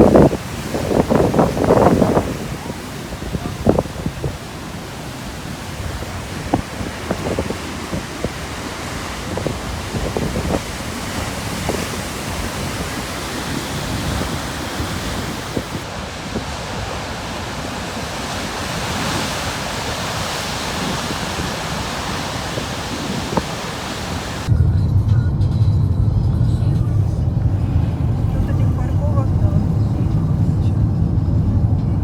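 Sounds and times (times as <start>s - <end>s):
surf breaking on rocky shore: 0.0s - 24.5s
wind buffeting microphone: 0.0s - 24.9s, 25.9s - 32.0s.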